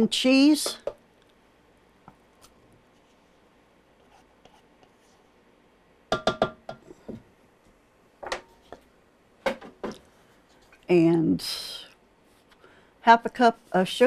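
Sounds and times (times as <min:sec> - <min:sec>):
dishes knocking on a bowl: 0:06.1 - 0:06.8.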